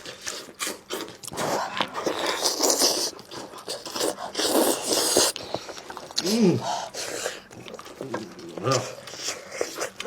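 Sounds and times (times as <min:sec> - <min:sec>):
chewing and mouth noises: 0:00.0 - 0:10.0.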